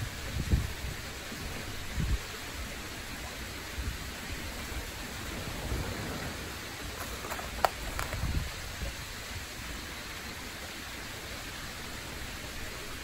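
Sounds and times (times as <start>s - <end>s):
wind buffeting microphone: 0.0s - 2.4s, 3.7s - 9.8s
steady outdoor hiss: 0.0s - 13.0s.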